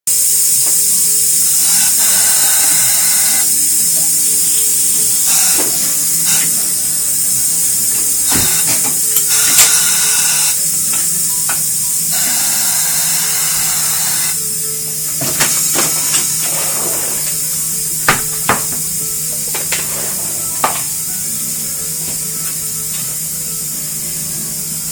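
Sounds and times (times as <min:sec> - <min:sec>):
compressed air hissing: 0:00.1 - 0:24.9
tools knocking: 0:18.1 - 0:18.9.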